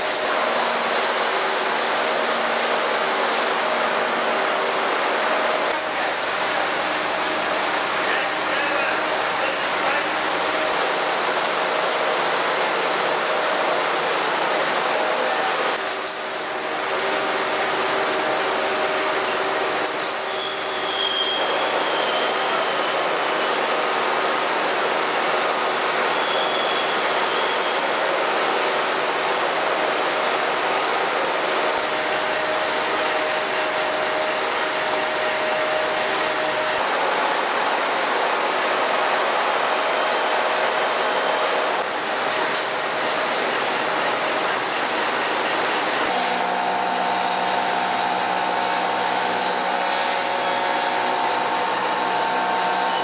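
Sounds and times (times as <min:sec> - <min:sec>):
machine running with hum: 0:05.7 - 0:10.8, 0:15.8 - 0:21.4, 0:31.8 - 0:36.8, 0:41.8 - 0:49.6
faint high squeal: 0:20.2 - 0:22.9.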